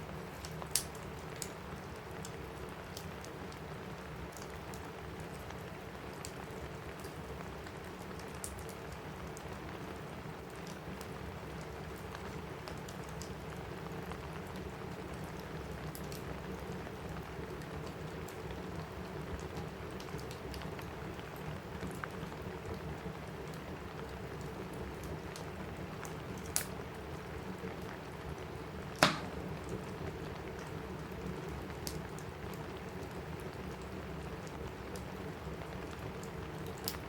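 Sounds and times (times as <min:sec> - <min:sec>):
fireplace crackling: 0:00.0 - 0:37.0
rain on a roof: 0:00.0 - 0:37.0
fire pops: 0:28.9 - 0:30.0.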